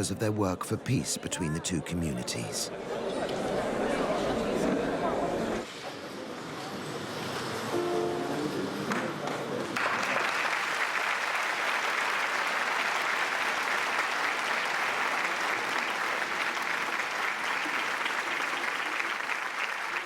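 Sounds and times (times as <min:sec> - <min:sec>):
held music notes: 0:07.7 - 0:08.9
audience applause: 0:08.6 - 0:20.0.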